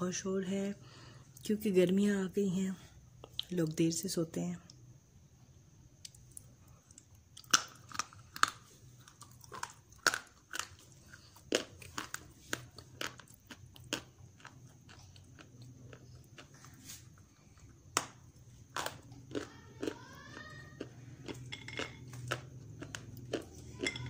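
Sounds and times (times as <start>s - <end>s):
clay crunching being chewed: 6.0s - 24.0s.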